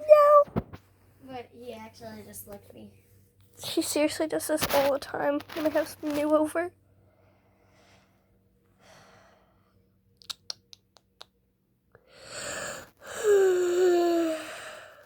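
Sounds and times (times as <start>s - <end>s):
breathy exhales: 12.0s - 15.0s.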